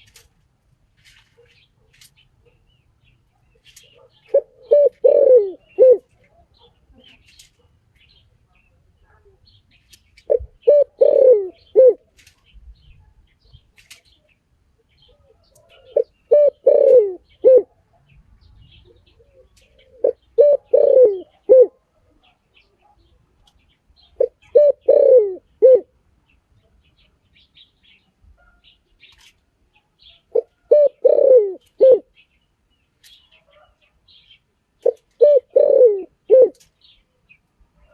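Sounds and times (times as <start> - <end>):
small birds chirping: 0.0 - 37.9
dove cooing: 3.6 - 7.6, 10.3 - 12.0, 15.1 - 17.8, 18.8 - 21.8, 24.2 - 25.9, 30.3 - 32.1, 34.8 - 36.7.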